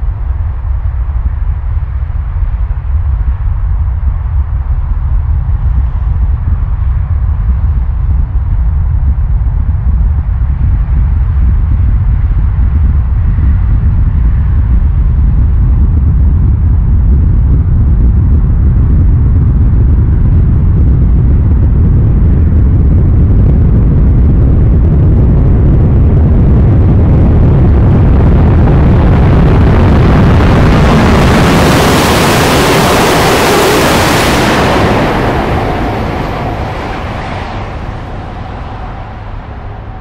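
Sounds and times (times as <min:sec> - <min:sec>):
deep tunnel rumble: 0:00.0 - 0:40.0
train passing at high speed: 0:28.6 - 0:40.0.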